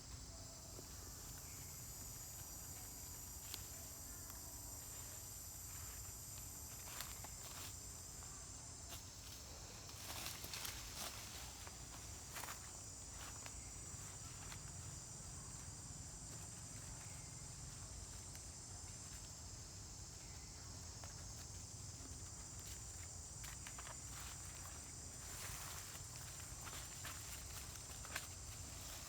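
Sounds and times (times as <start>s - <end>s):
high-pitched insect drone: 0.1s - 18.2s.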